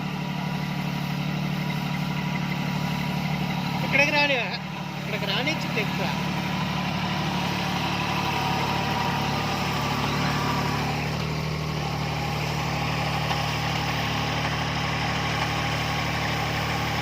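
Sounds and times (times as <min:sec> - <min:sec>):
mini tractor engine running: 0:00.0 - 0:17.0.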